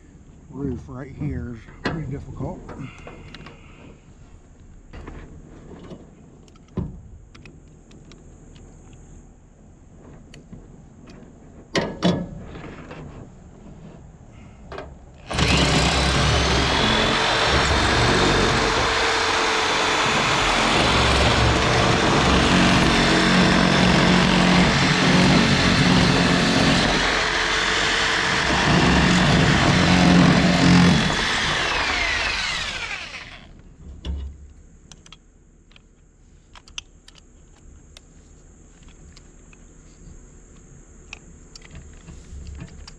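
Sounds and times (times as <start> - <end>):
power tool running: 15.2 - 33.5.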